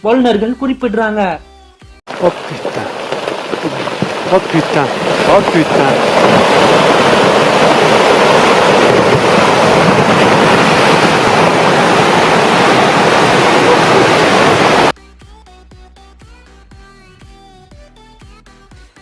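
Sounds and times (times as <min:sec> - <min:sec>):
rock or snow pouring down mountainside: 0:02.1 - 0:14.9
wind noise on microphone: 0:02.4 - 0:14.9.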